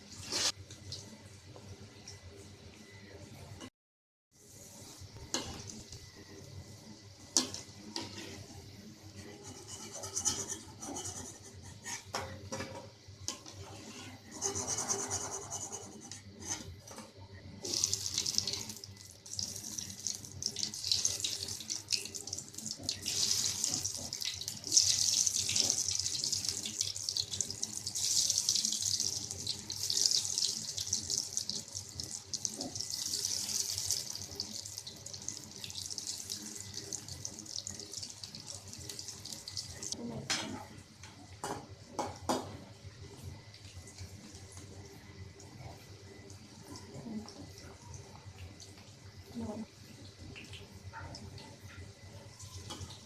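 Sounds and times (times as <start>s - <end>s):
food sizzling in hot oil: 17.6s - 40.0s.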